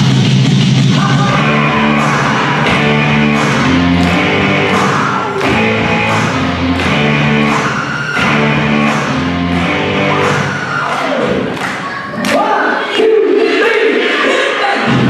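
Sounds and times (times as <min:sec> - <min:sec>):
steady drum beat: 0:00.0 - 0:10.5
electric guitar chords: 0:00.0 - 0:10.6.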